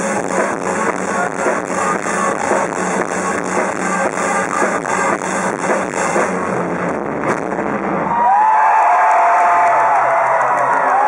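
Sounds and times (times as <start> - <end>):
drums and cymbals beat: 0.0 - 7.7
rock band playing live: 0.0 - 8.1.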